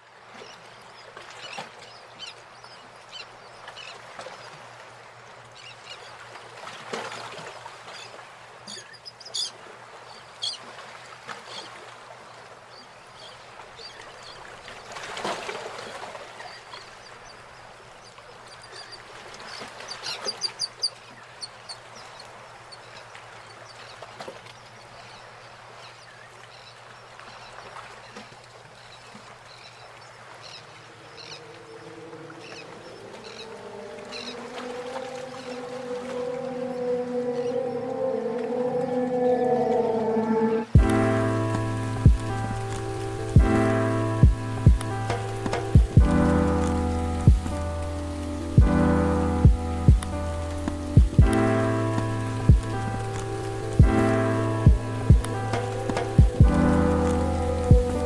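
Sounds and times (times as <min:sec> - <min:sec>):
birds chirping and trilling: 0:08.7 - 0:10.6, 0:30.4 - 0:58.0.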